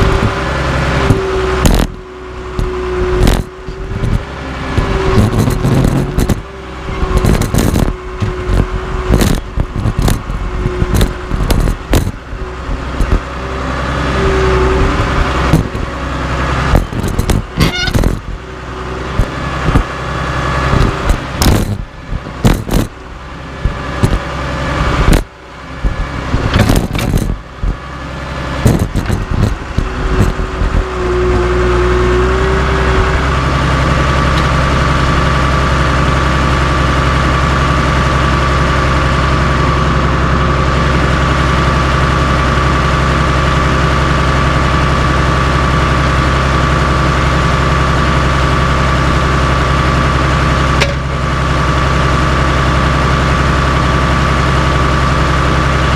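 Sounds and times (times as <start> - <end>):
bulldozer diesel engine running: 0.0 - 55.9
heavy metal clanks and bangs: 7.1 - 13.3, 16.6 - 18.4, 20.7 - 24.4, 25.0 - 27.8, 28.6 - 30.9, 50.5 - 51.7.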